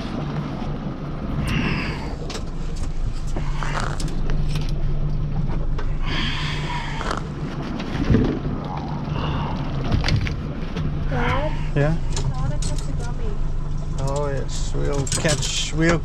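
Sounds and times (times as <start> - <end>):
boat engine idling: 0.0 - 16.0
gear knocking and clattering: 13.8 - 16.0.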